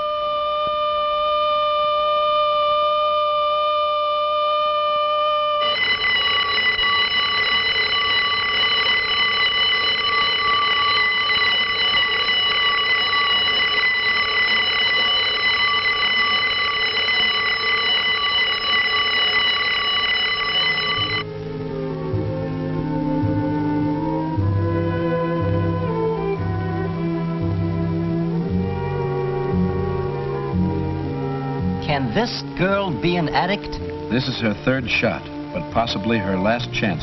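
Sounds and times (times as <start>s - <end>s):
clear held tone: 5.0s - 21.3s
rattling alarm ring: 5.6s - 21.3s
music with moving notes: 21.3s - 37.0s.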